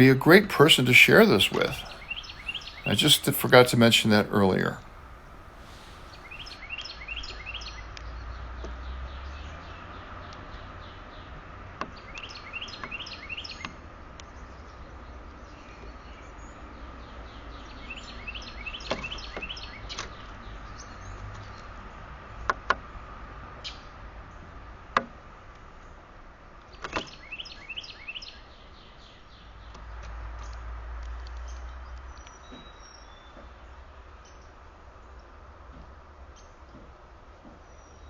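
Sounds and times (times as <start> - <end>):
songbird chirping: 0.0 - 6.6.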